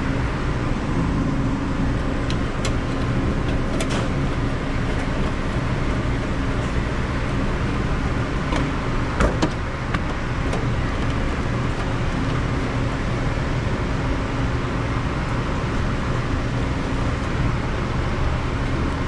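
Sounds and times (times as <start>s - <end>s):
machinery hum: 0.0s - 19.0s
sharp clicks and knocks: 8.5s - 11.2s.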